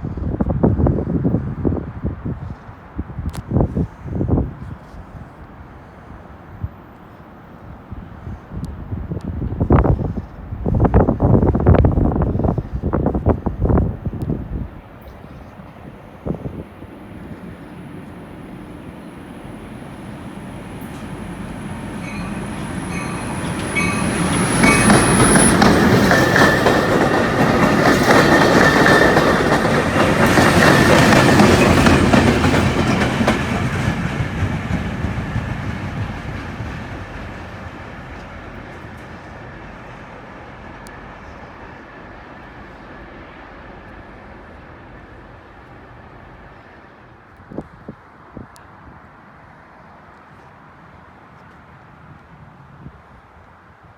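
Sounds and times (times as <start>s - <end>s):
train passing at speed: 0.0s - 53.9s
train wheels clacking: 16.8s - 42.2s.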